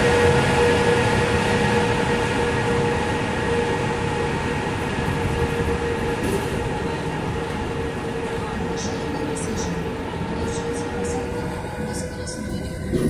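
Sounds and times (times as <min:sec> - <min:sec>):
constant tonal hum: 0:00.0 - 0:13.0
train rumbling along track: 0:00.0 - 0:13.0.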